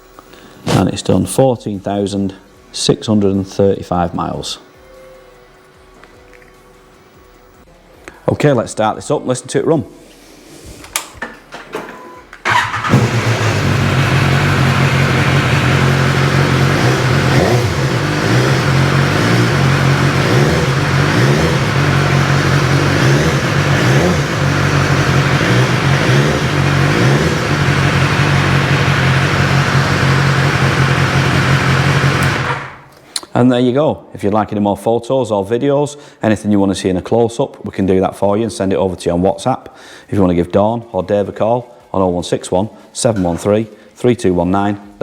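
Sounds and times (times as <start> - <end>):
motorcycle engine starting and running: 12.4 - 32.9.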